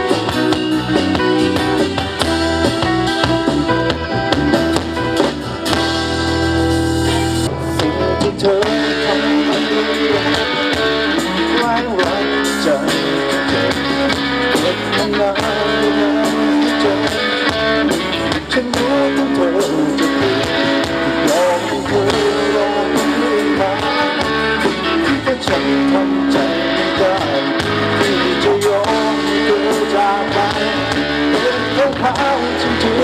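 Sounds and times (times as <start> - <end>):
electric guitar: 0.0 - 33.0
live band pop music: 0.0 - 33.0
person singing: 7.0 - 33.0.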